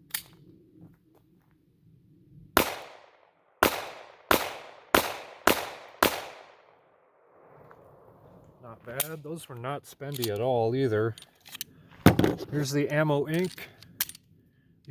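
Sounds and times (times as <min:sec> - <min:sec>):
pistol shots with echo: 0:02.6 - 0:07.6.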